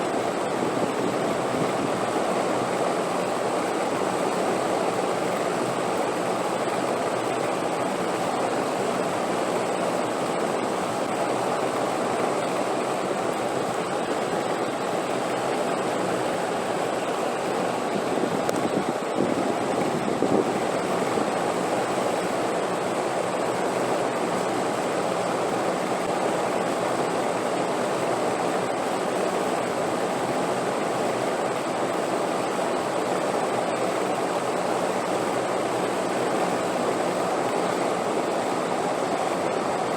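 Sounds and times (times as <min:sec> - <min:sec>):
wind noise: 0:17.8 - 0:21.5.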